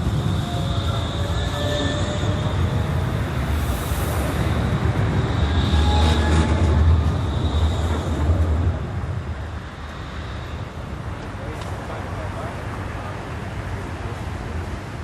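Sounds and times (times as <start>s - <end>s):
high-pitched train whine: 0.0s - 15.0s
light rail train rumbling: 0.0s - 15.0s.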